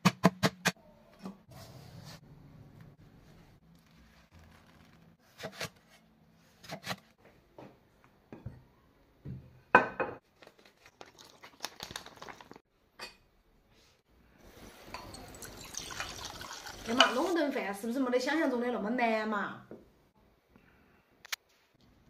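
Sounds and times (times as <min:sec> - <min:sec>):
packaging crinkling and tearing: 0:03.8 - 0:05.2, 0:10.2 - 0:12.6.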